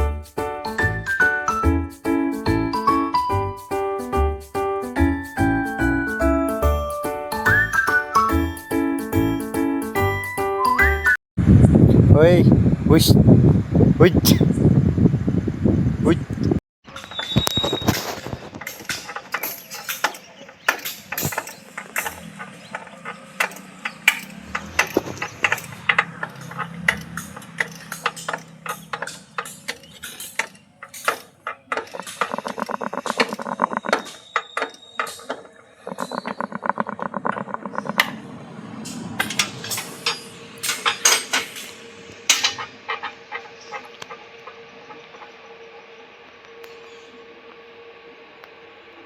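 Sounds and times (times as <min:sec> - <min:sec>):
metal tools clinking and knocking: 0:18.0 - 0:38.0, 0:39.2 - 0:43.9
rapid clicking: 0:18.2 - 0:38.2.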